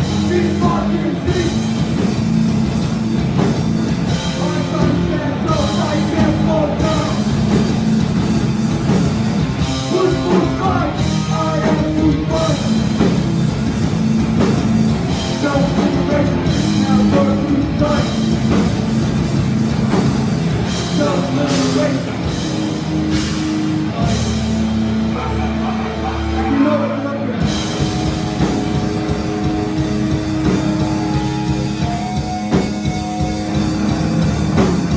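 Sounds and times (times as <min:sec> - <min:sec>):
drum kit: 0:00.0 - 0:26.8, 0:27.4 - 0:34.9
bass: 0:00.0 - 0:34.9
distorted guitars: 0:00.0 - 0:34.9
shouted vocals: 0:25.0 - 0:27.5.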